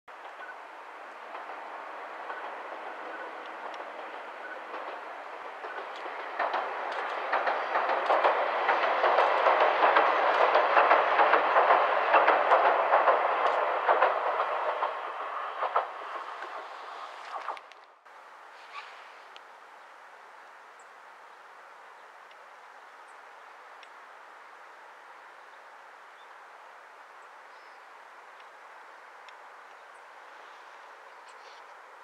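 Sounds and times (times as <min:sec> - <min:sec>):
train wheels clattering on bridge: 0:00.2 - 0:17.7.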